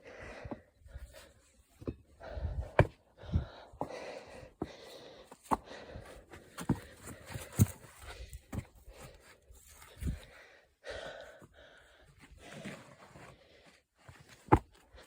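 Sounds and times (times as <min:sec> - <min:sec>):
person breathing hard: 0:00.0 - 0:13.8
footsteps and scuffs: 0:06.4 - 0:10.1.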